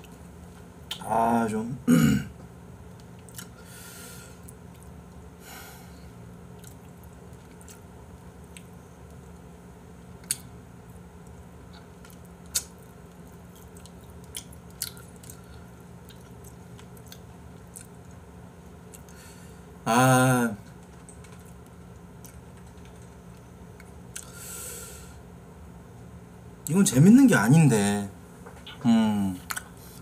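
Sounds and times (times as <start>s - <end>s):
steady low hum: 0.0s - 30.0s
person chewing food: 2.9s - 3.7s, 4.4s - 5.3s, 6.5s - 9.5s, 10.2s - 19.2s, 20.6s - 24.4s, 29.4s - 30.0s.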